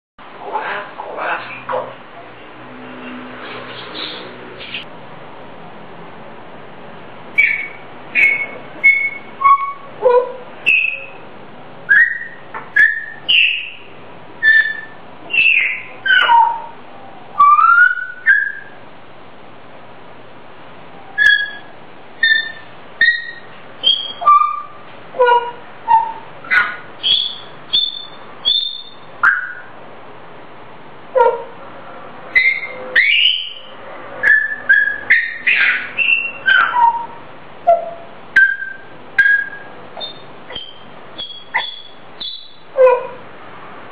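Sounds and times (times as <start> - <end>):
parrot whistling: 7.4 - 11.2, 11.9 - 16.8, 17.4 - 18.8, 21.1 - 29.7, 32.3 - 43.2.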